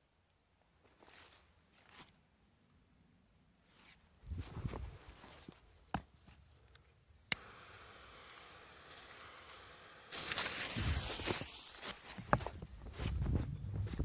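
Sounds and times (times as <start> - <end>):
sharp click: 7.3 - 7.6
firecracker fuse hissing: 7.3 - 12.7
footsteps: 8.7 - 14.0.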